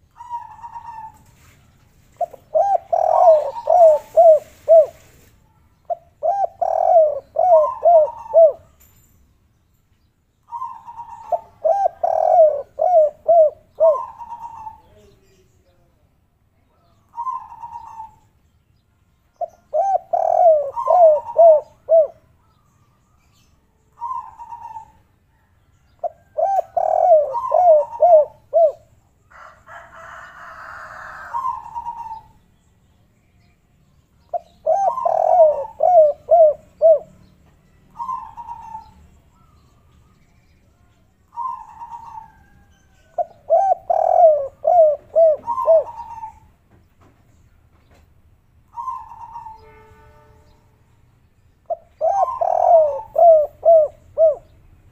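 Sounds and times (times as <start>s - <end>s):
doves cooing: 0.0s - 5.2s, 5.8s - 8.8s, 10.5s - 15.0s, 17.1s - 18.2s, 19.5s - 22.2s, 24.0s - 28.9s, 30.0s - 32.4s, 34.3s - 37.2s, 38.0s - 39.6s, 41.3s - 46.5s, 48.7s - 49.6s, 51.7s - 54.5s.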